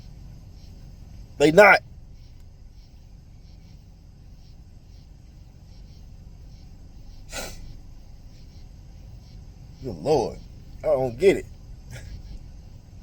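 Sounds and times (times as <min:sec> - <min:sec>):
steady low hum: 0:00.0 - 0:13.0
man sniffing: 0:07.3 - 0:07.8.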